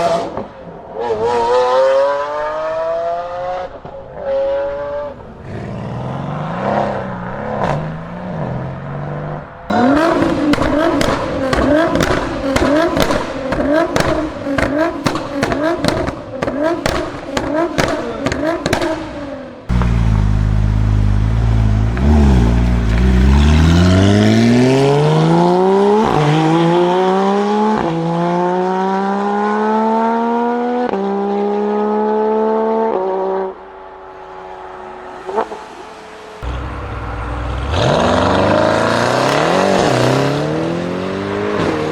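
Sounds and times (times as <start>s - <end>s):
exhaust pops crackling: 10.1s - 19.0s, 19.7s - 23.8s
car engine accelerating hard: 19.7s - 33.5s, 36.4s - 41.9s.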